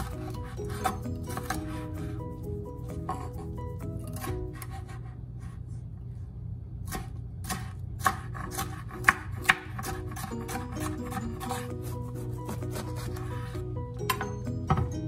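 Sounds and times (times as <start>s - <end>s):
knife chopping on cutting board: 0.0s - 1.9s, 6.9s - 14.9s
soft background music: 0.0s - 4.8s, 8.7s - 15.0s.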